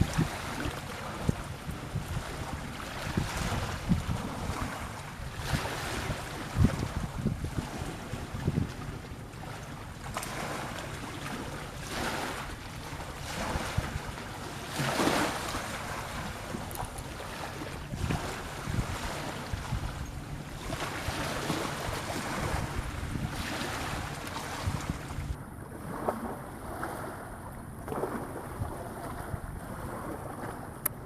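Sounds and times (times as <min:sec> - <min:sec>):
sea water rushing: 0:00.0 - 0:31.0
wind buffeting microphone: 0:00.0 - 0:31.0.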